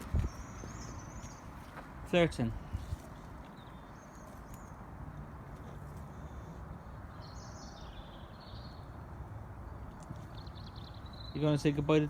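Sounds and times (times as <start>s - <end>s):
outdoor background noise: 0.0s - 12.0s
small bird chirping: 9.7s - 11.6s.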